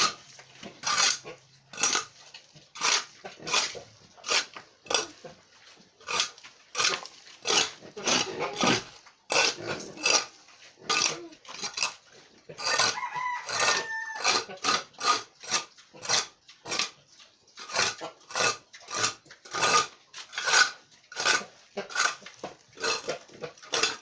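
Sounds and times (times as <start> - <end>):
metal tool scraping cement mix: 0.0 - 17.0, 17.6 - 24.0
rooster crowing: 12.6 - 14.5.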